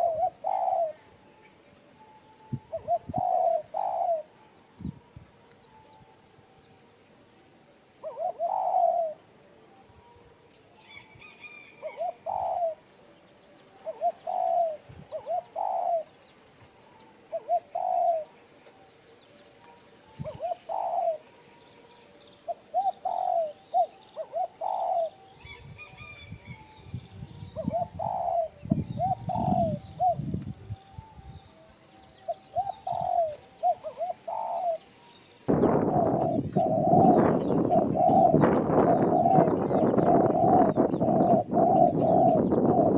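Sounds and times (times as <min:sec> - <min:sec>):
dove cooing: 0:00.0 - 0:01.3, 0:02.4 - 0:04.4, 0:08.0 - 0:09.4, 0:10.8 - 0:12.9, 0:13.7 - 0:18.6, 0:20.0 - 0:26.8, 0:27.4 - 0:30.4, 0:32.2 - 0:34.9, 0:35.5 - 0:42.9
bird chirping: 0:00.0 - 0:42.9.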